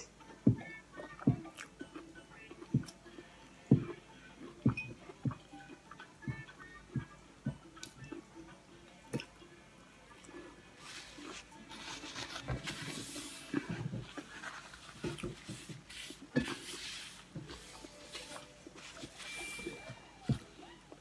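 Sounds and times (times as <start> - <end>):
person chewing crunchy food: 10.8 - 20.4.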